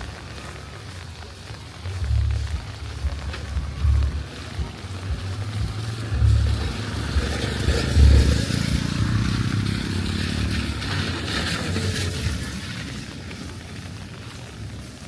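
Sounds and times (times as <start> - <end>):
low rumble: 1.7 - 13.1
vehicle engine passing by: 3.8 - 13.2.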